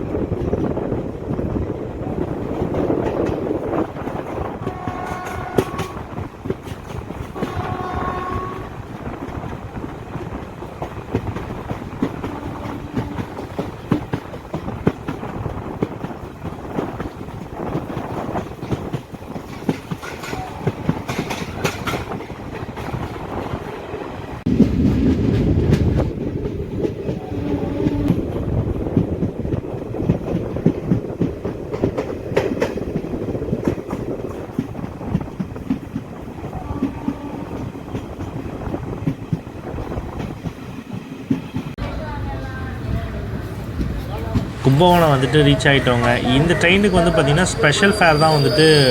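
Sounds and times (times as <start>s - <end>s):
train wheels rumbling on rails: 0.0s - 48.9s
locomotive horn blasts: 4.5s - 6.1s, 7.4s - 9.5s, 12.2s - 13.4s, 27.3s - 28.2s.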